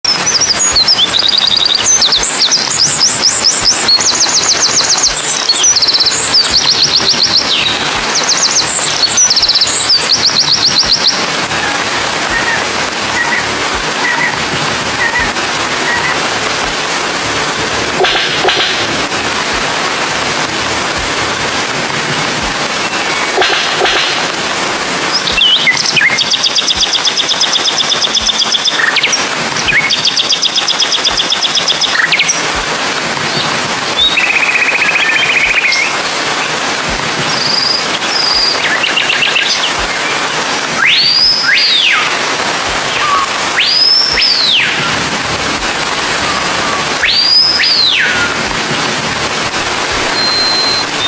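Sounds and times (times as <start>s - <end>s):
whistled bird calls: 0.1s - 16.3s, 22.8s - 24.3s, 25.1s - 32.5s, 34.0s - 36.6s, 37.2s - 45.0s, 46.1s - 48.5s, 50.0s - 51.0s
steady hiss: 0.1s - 51.0s
buzzy bird call: 0.2s - 20.0s, 22.7s - 32.5s, 45.7s - 48.6s.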